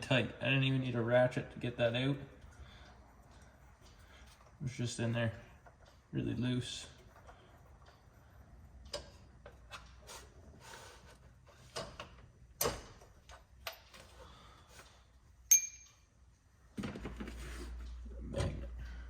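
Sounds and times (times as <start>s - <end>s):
tools and parts clicking and rustling: 11.4s - 14.9s, 15.5s - 16.1s
sharp metallic clink: 15.5s - 16.1s.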